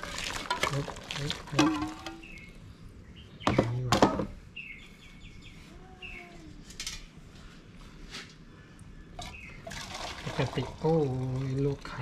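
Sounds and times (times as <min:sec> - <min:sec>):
small birds chirping: 0:01.9 - 0:06.7, 0:08.6 - 0:09.7.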